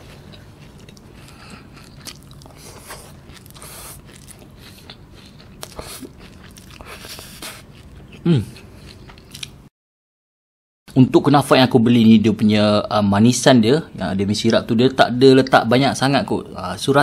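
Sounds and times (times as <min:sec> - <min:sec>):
person chewing: 0:00.0 - 0:09.6.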